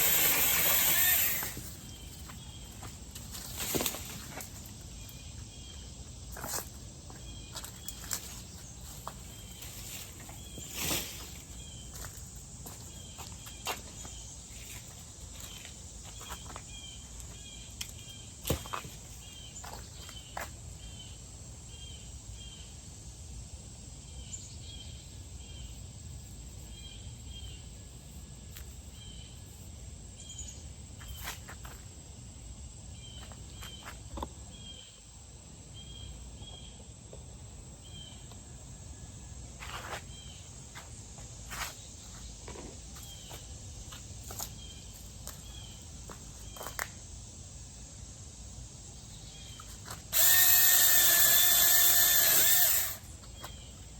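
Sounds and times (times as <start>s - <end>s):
insects chirping: 0.0s - 53.9s
steady high-pitched hum: 47.4s - 53.9s.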